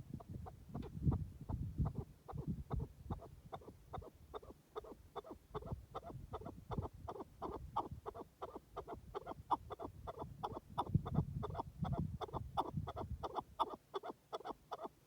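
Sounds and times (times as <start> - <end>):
partridge clucking calls: 1.8 - 15.0.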